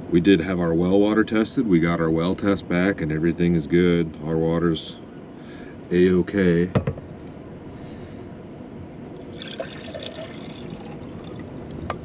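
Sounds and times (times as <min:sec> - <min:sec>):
steady background hiss: 0:00.0 - 0:12.0
liquid pouring into container: 0:09.2 - 0:11.5.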